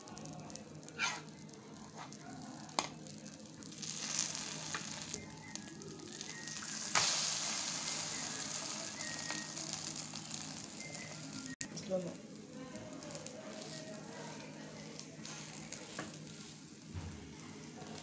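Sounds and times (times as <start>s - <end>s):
omelette sizzling in oil: 0.0s - 18.0s
spatula scraping pan: 1.0s - 1.3s.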